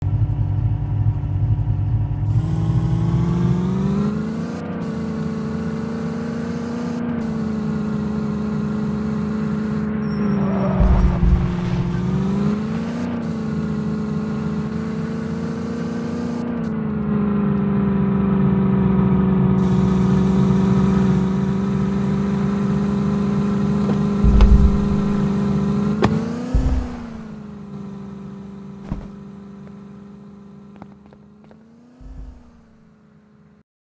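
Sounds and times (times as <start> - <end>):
low thumps: 10.2 - 12.7, 23.8 - 27.4, 32.0 - 32.8
tractor motor running: 19.6 - 32.8.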